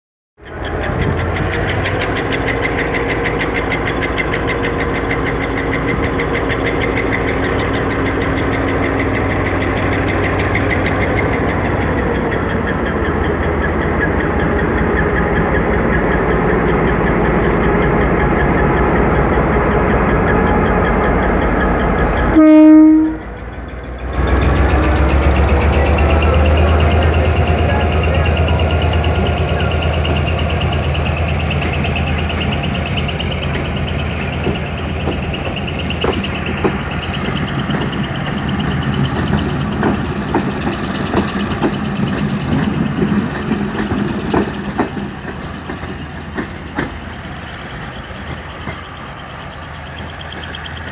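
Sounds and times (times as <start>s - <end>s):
diesel locomotive engine running: 0.4s - 50.9s
train horn blast: 22.3s - 23.3s.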